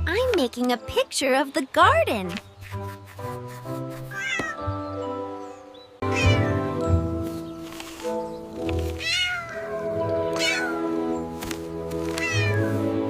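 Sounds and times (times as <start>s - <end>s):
background music: 0.0s - 13.0s
cat meowing: 4.1s - 4.6s, 6.1s - 6.7s, 9.0s - 9.7s, 10.4s - 10.8s, 12.1s - 12.7s.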